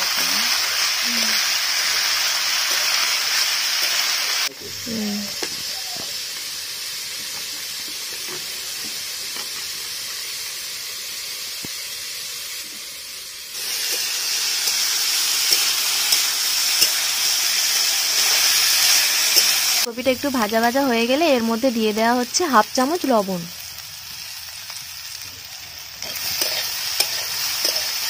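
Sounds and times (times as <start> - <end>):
food sizzling in hot oil: 0.0 - 28.0
metal spatula scraping pan: 26.0 - 28.0.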